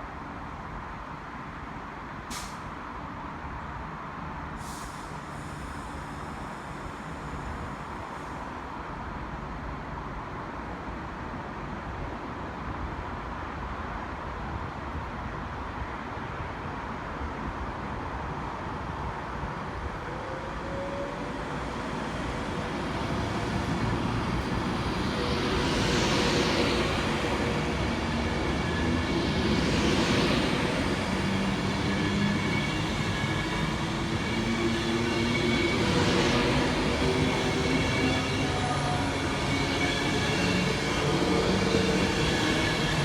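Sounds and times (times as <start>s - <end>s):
train rumbling: 19.2s - 43.0s.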